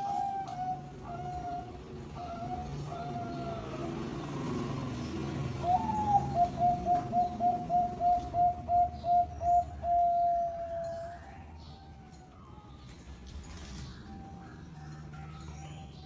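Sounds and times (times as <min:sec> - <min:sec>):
dove cooing: 0:00.0 - 0:11.1.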